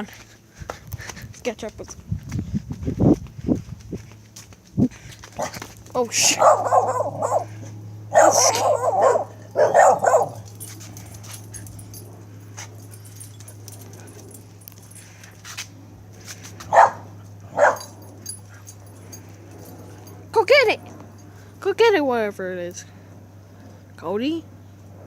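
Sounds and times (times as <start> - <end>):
dogs barking: 5.4 - 15.3, 16.6 - 20.2.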